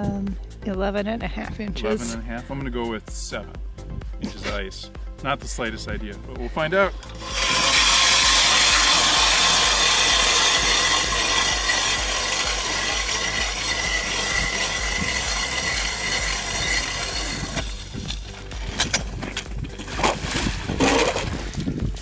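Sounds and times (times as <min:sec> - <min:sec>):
ice auger grinding: 0:06.9 - 0:22.0.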